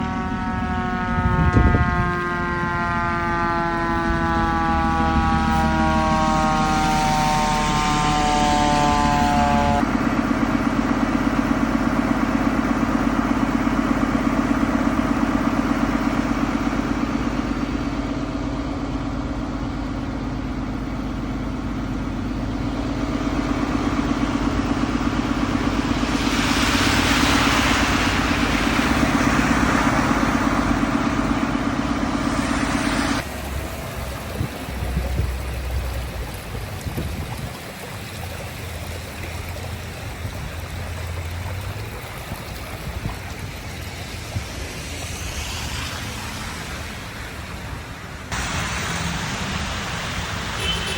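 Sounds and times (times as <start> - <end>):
siren winding down: 0.0 - 36.2, 41.4 - 48.4
diesel engine throbbing: 0.0 - 50.9
running water: 24.4 - 50.9
hissing rush: 25.2 - 34.2, 41.7 - 50.9.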